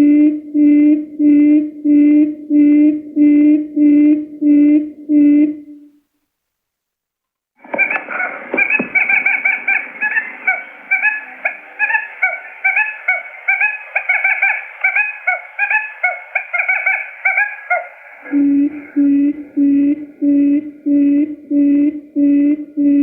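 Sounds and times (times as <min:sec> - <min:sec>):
quail call chirping and hooting: 0:07.6 - 0:19.7.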